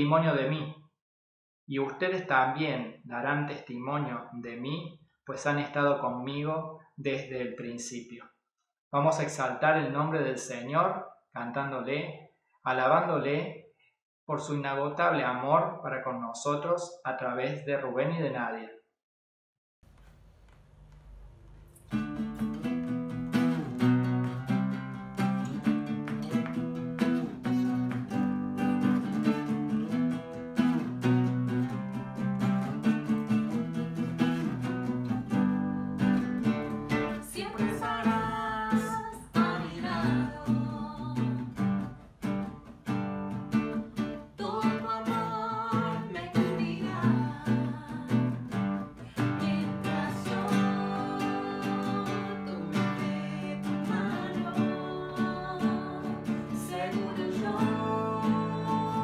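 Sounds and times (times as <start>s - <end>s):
acoustic guitar strumming: 21.8s - 59.0s
person singing: 36.9s - 41.5s, 44.4s - 48.4s, 49.0s - 59.0s.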